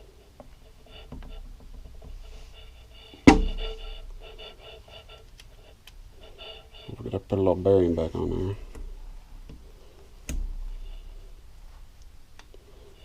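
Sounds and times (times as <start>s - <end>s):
sharp metallic knock ringing: 3.3s - 3.8s.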